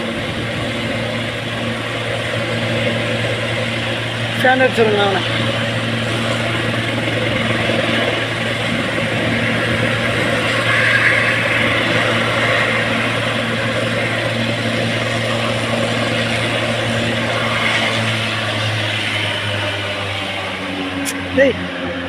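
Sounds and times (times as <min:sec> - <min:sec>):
helicopter engine and rotor: 0:00.0 - 0:22.0.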